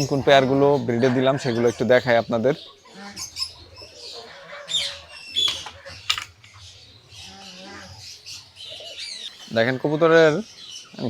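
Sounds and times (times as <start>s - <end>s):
birds chirping and calling: 0.0s - 11.0s
sharp clicks and rattles: 5.4s - 6.6s.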